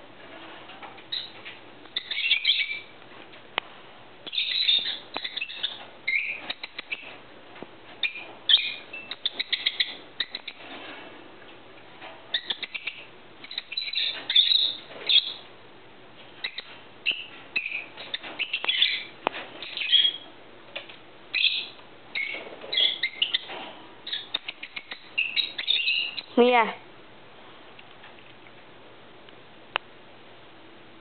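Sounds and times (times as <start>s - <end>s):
small birds chirping: 1.1s - 2.9s, 4.2s - 7.2s, 8.0s - 10.8s, 12.3s - 15.5s, 16.4s - 26.8s.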